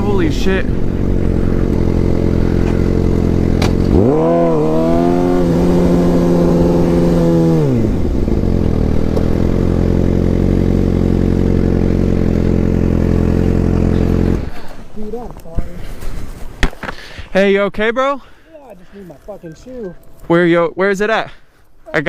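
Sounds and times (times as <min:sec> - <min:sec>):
motorcycle engine idling and revving: 0:00.0 - 0:15.7.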